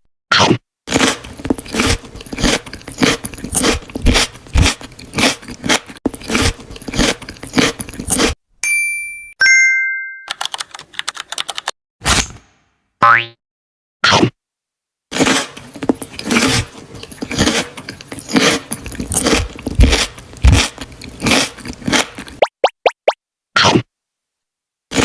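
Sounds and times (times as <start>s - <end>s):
crunching of crisp food: 0.9s - 8.4s, 15.1s - 22.4s
electronic chime tones: 9.0s - 10.3s.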